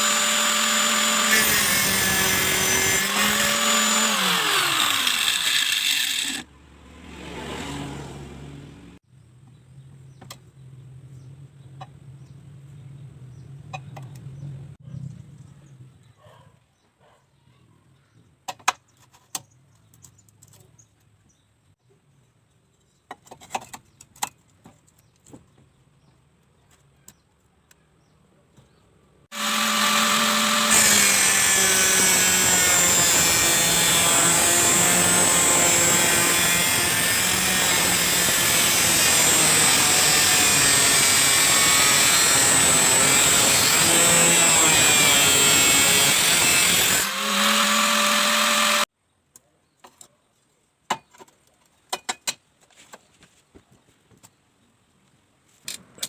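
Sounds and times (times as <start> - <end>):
angle grinder whining: 0.0 - 6.4, 29.3 - 48.9.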